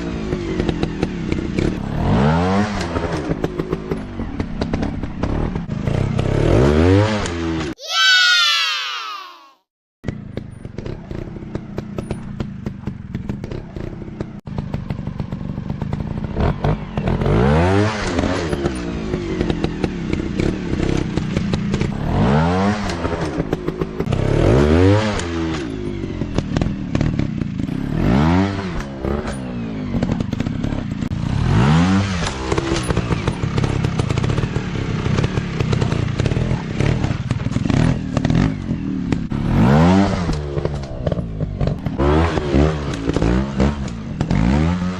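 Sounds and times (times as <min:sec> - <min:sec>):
dirt bike engines revving: 0:16.4 - 0:44.9.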